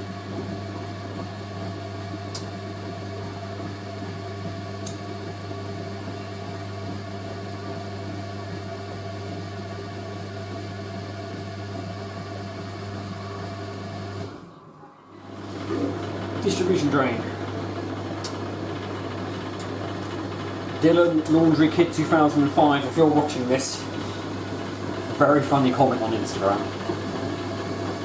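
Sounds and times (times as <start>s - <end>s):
low mains hum: 0.0s - 28.0s
drain pump running: 15.2s - 28.0s.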